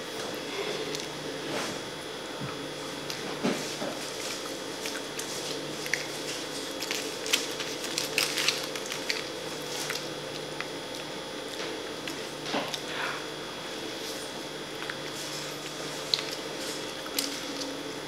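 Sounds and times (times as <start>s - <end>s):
person chewing with wet smacks: 4.0s - 12.9s, 13.9s - 17.8s.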